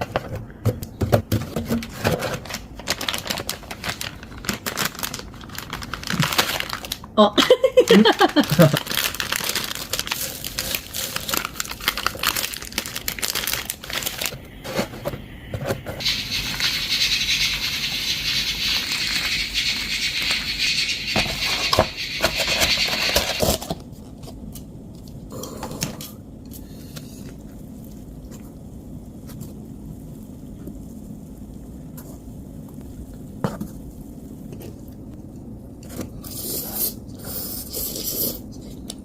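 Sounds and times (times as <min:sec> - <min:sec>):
plastic packaging crinkling and tearing: 0:01.7 - 0:07.2, 0:07.9 - 0:14.9
steady hiss: 0:10.1 - 0:23.6.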